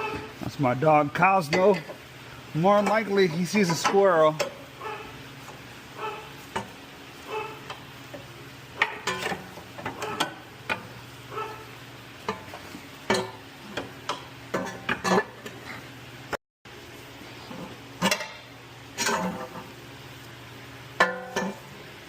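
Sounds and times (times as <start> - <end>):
dog barking: 4.8 - 5.2, 6.0 - 6.4, 7.2 - 7.7, 10.0 - 10.4, 11.3 - 11.7.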